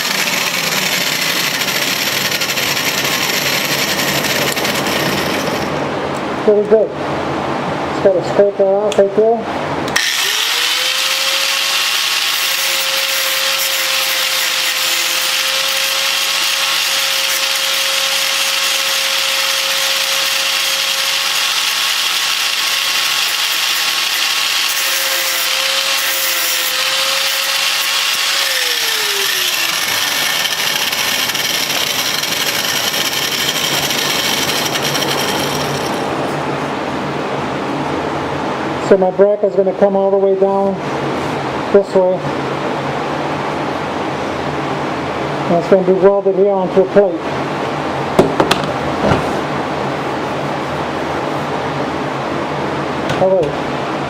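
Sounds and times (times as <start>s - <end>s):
grinder motor whine: 0.0s - 5.8s, 10.0s - 36.2s
grinding steel: 0.0s - 5.8s, 10.0s - 36.3s.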